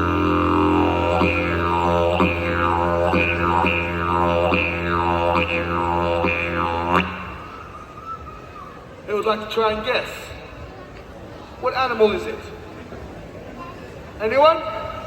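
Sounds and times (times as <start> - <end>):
didgeridoo drone: 0.0 - 7.8.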